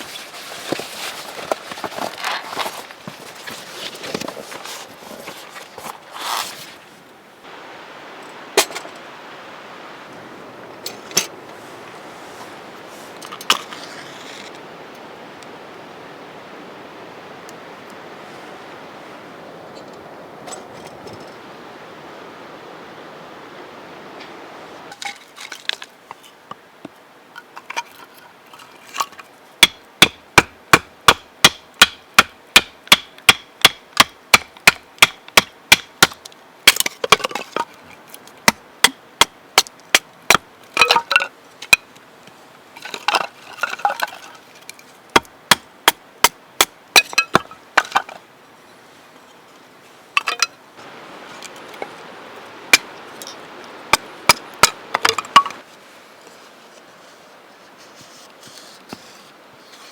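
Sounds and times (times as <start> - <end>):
cracking and rustling: 0.0 - 6.9.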